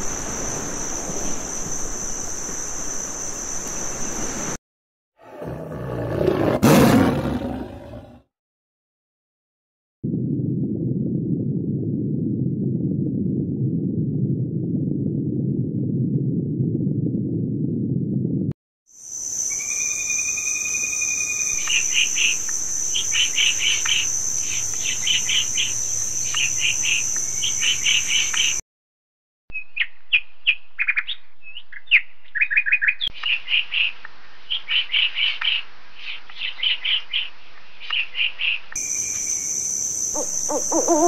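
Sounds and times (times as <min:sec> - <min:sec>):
high-pitched insect drone: 0:19.0 - 0:28.6, 0:38.8 - 0:41.0.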